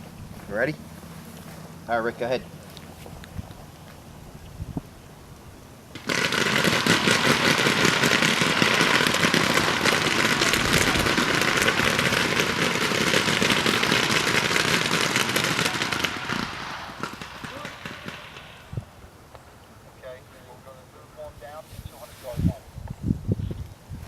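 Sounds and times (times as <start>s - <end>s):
paintball markers firing: 5.9s - 18.7s.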